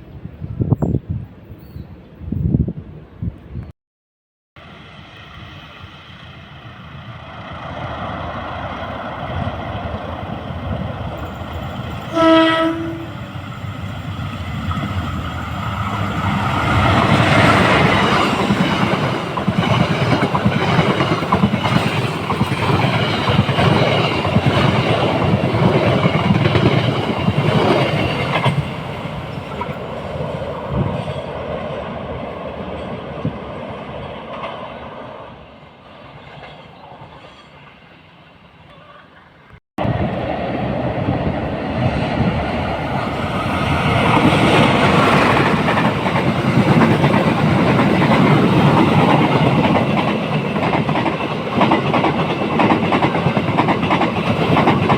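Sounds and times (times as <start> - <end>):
train passing: 4.6 - 54.9
train horn blast: 12.1 - 13.2.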